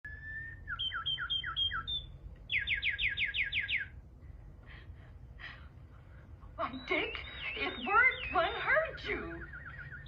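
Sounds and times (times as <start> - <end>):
person whistling bird calls: 0.0 - 2.0.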